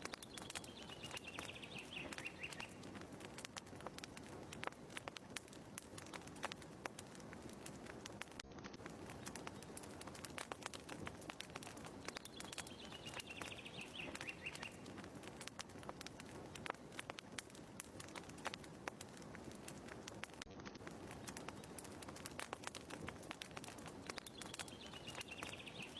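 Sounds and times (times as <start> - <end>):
wood fire crackling: 0.0 - 25.9
bird chirping trill: 0.1 - 2.8, 12.1 - 14.8, 24.1 - 25.9.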